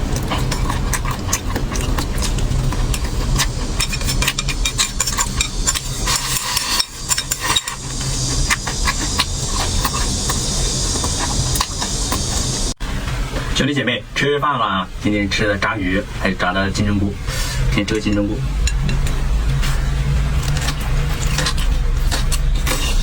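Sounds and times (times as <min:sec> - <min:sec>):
chewing and crunching: 0:00.0 - 0:12.7, 0:20.3 - 0:23.0
steady hiss: 0:00.0 - 0:18.8.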